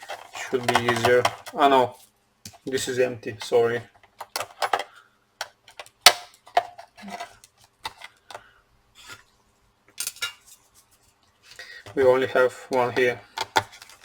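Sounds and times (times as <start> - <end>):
laptop parts clicking and clinking: 4.0 - 8.4.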